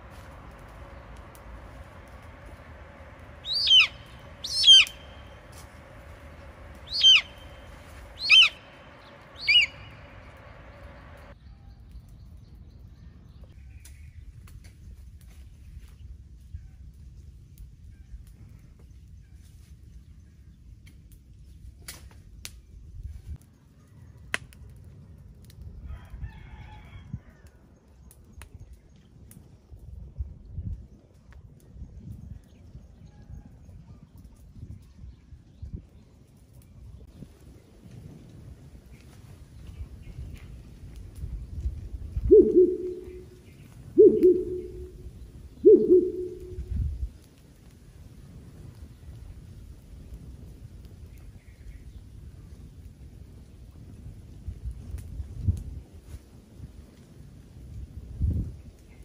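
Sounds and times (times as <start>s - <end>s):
steady low rumble: 0.0s - 16.3s, 36.7s - 47.2s
bird call falling in pitch: 3.4s - 5.2s, 6.9s - 7.6s, 8.2s - 8.7s, 9.4s - 10.0s, 42.3s - 45.0s, 45.6s - 46.7s
rooster crowing: 25.8s - 27.5s.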